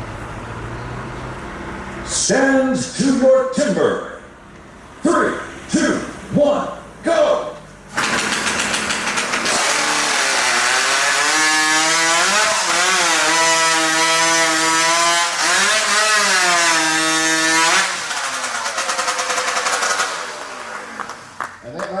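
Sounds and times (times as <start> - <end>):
chainsaw cutting log: 7.9 - 21.5.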